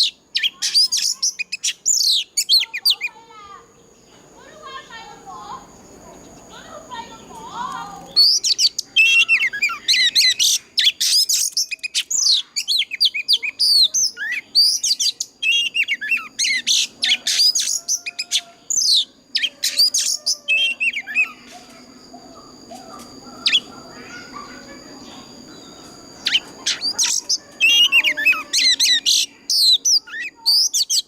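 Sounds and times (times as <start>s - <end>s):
bird singing whistled notes: 0.0s - 3.1s, 8.0s - 31.0s.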